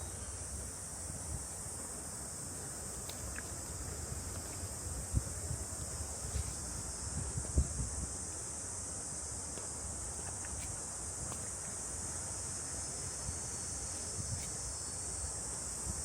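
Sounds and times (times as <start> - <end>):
cicadas chorus: 0.0 - 16.0
soft footfalls on a trail: 3.0 - 8.7, 9.3 - 12.7.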